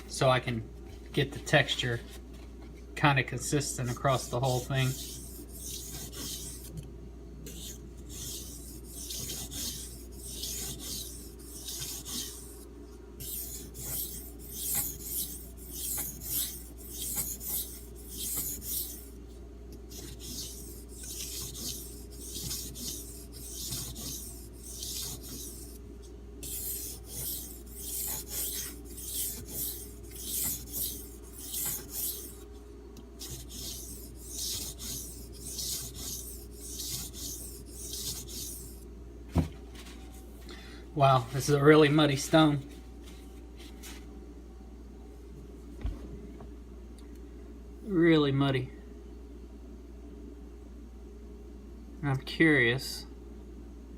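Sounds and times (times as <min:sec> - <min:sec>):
knife blade scraping on whetstone: 0:07.5 - 0:12.6, 0:13.2 - 0:19.1, 0:19.9 - 0:25.8, 0:26.4 - 0:32.4, 0:33.2 - 0:38.8.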